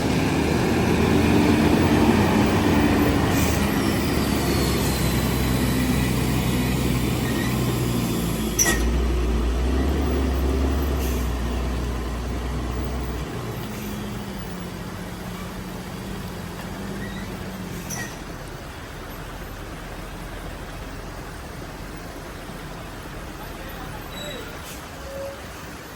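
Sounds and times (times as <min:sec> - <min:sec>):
truck engines droning: 0:00.0 - 0:25.9.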